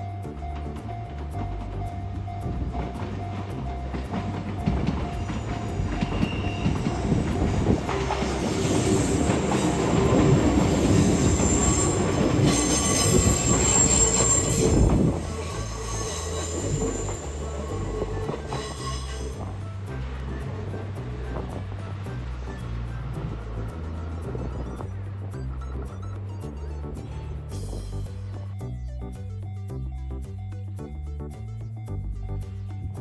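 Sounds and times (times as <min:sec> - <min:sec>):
train wheels squealing on rails: 0:00.4 - 0:26.2.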